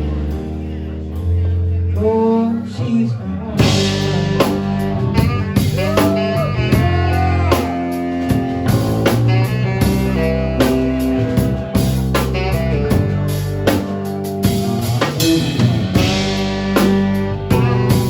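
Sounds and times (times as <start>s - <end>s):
rock band playing: 0.0s - 18.0s
bending guitar notes: 3.6s - 18.0s.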